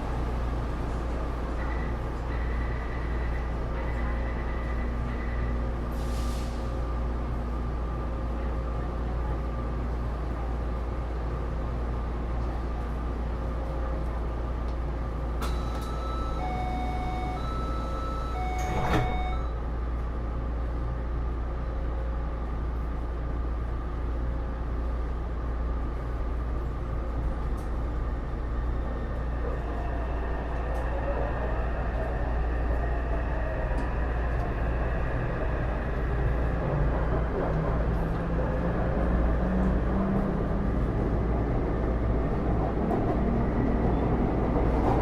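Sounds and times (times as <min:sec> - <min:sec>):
train interior hum: 0:00.0 - 0:45.0
electronic warning beeps: 0:15.5 - 0:19.6.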